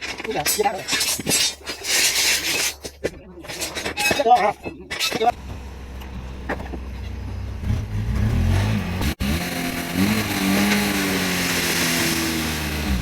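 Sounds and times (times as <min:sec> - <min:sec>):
diesel engine revving: 0:07.2 - 0:13.0.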